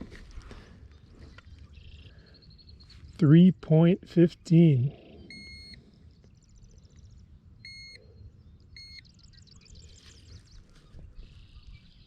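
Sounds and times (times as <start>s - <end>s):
digital scale beeping: 5.3s - 5.8s, 7.6s - 8.0s.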